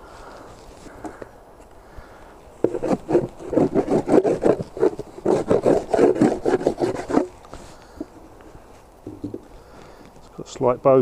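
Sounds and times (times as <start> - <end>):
wood scraping on wood: 2.6 - 10.2.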